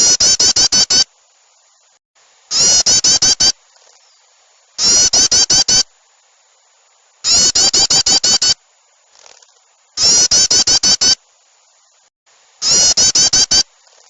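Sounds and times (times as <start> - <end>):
chattering small-bird call: 0.0 - 1.0, 2.5 - 4.2, 4.8 - 5.8, 7.2 - 8.6, 9.2 - 11.2, 12.6 - 14.0.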